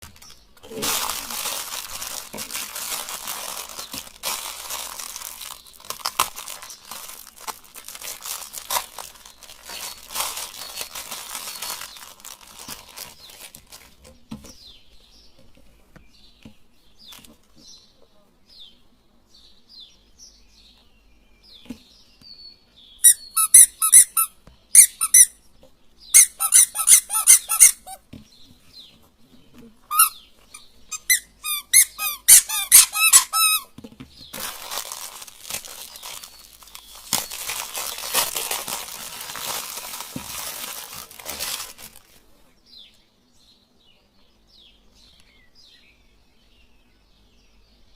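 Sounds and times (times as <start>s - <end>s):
plastic crunching in a grinder: 0.0s - 14.0s, 34.3s - 42.1s
high-pitched squeaks: 23.0s - 25.4s, 26.2s - 28.0s, 29.9s - 33.7s.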